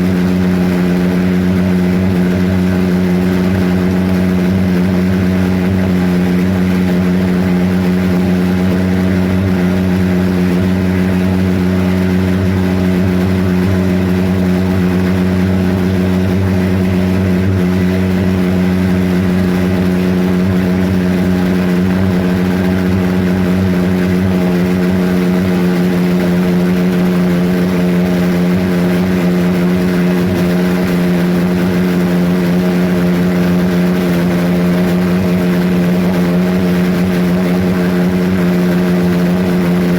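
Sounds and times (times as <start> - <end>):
pulse jet engine buzzing drone: 0.0 - 39.9.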